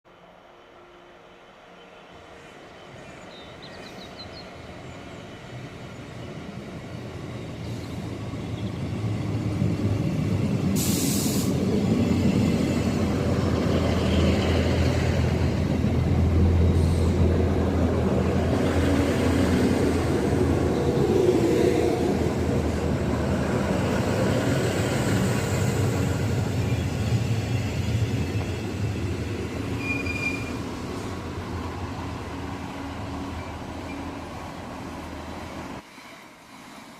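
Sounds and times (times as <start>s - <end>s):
diesel train engines humming: 0.1s - 35.8s
short hiss: 10.8s - 11.5s.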